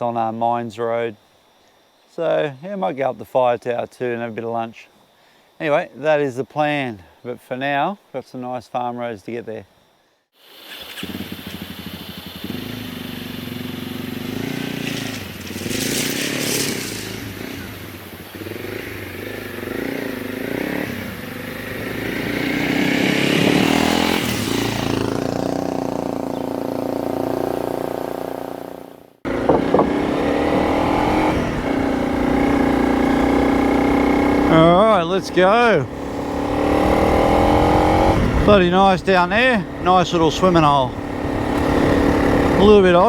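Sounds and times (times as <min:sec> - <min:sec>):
motorcycle engine accelerating: 0:10.6 - 0:43.0.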